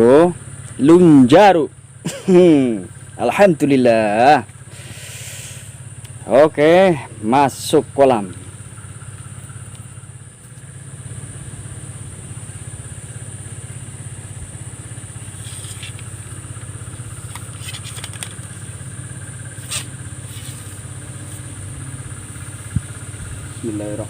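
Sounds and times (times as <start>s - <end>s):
small engine running: 0.0s - 24.0s
high-pitched whine: 5.1s - 24.0s.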